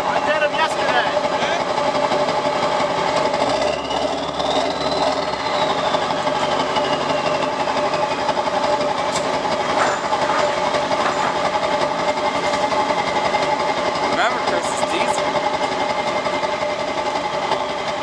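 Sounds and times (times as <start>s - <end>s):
diesel engine clattering: 0.0s - 18.0s
faint high turbo whistle: 3.5s - 8.9s, 17.4s - 18.0s.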